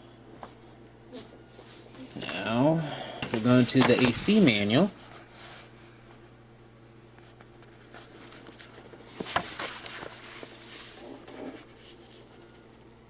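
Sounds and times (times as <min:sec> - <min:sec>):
faint steady hum: 0:00.0 - 0:13.0
paper pages rustling: 0:03.3 - 0:05.7, 0:07.2 - 0:12.6.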